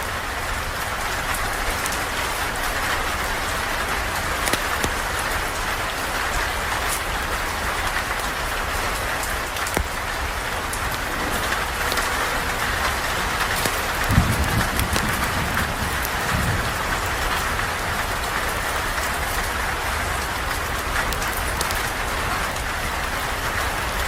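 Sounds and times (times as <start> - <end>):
rain falling on a surface: 0.0 - 24.0
sharp ticks: 4.4 - 5.0, 12.8 - 16.4.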